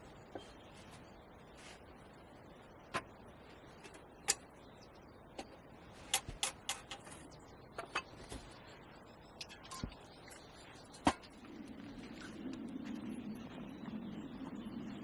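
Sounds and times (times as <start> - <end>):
sharp clicks and knocks: 5.4 - 8.2.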